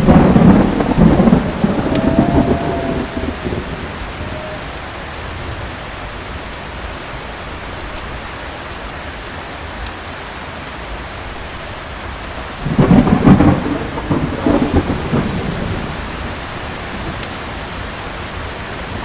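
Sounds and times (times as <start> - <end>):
thunder rumble: 0.0 - 6.0, 12.6 - 19.0
heavy rain: 0.0 - 19.0.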